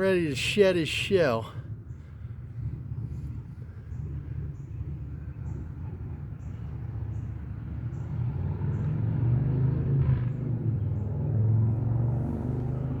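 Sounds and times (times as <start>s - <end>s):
low outdoor rumble: 0.0s - 9.3s.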